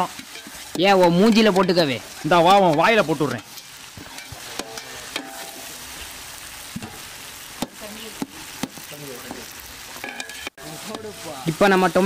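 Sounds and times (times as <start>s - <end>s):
eggs sizzling in a pot: 0.0s - 12.0s.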